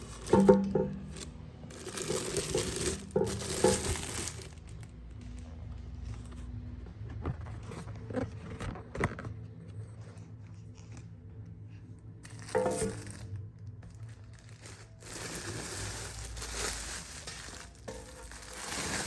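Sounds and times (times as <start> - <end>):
packaging crinkling and tearing: 1.2 - 5.0, 12.2 - 19.0.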